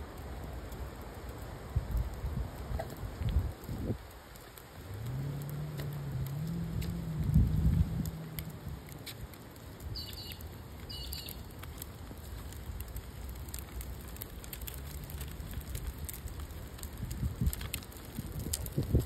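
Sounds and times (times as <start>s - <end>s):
wind rumble on microphone: 0.0s - 10.5s, 11.2s - 19.0s
street ambience: 1.4s - 18.8s
short high bird calls: 10.0s - 11.4s.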